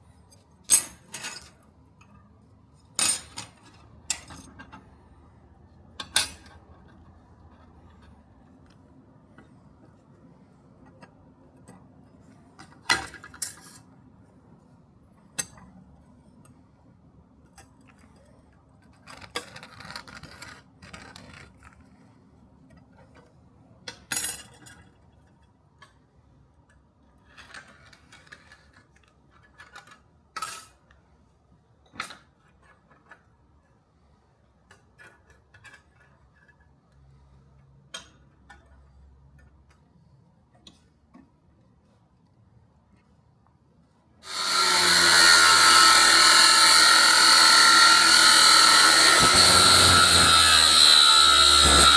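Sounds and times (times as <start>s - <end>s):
metal scraping: 44.3s - 51.9s.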